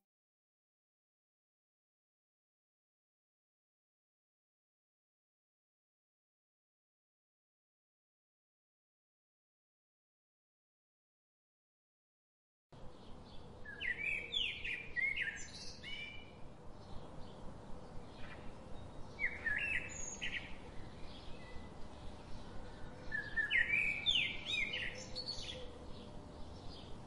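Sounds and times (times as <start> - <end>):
small bird chirping: 13.0 - 27.0.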